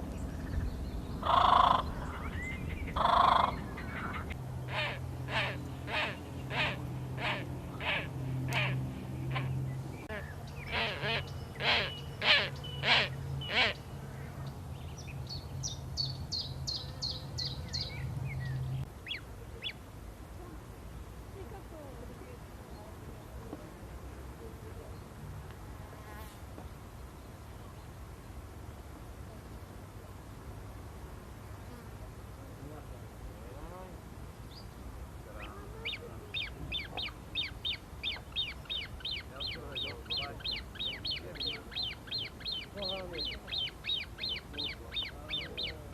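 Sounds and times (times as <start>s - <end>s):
small bird singing: 9.2s - 19.8s, 35.4s - 45.9s.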